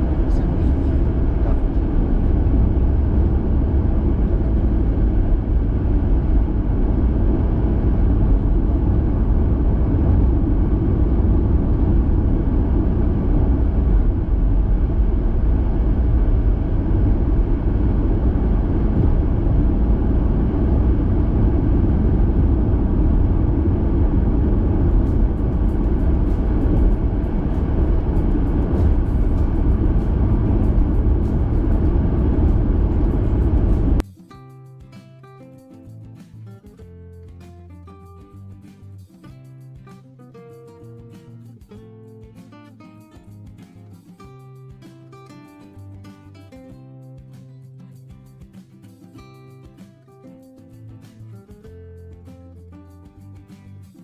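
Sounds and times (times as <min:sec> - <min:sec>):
car cabin road and engine noise: 0:00.0 - 0:34.0.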